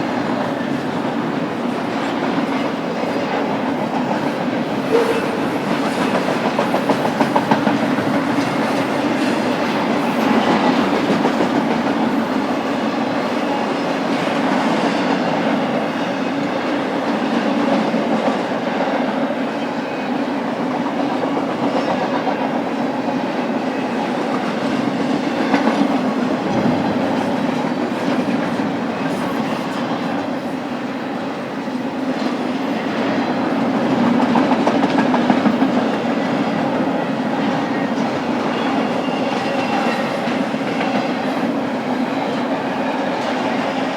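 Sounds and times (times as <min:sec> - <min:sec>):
wheels clacking over rail joints: 0:00.0 - 0:16.5
freight train cars rolling past: 0:00.0 - 0:43.9.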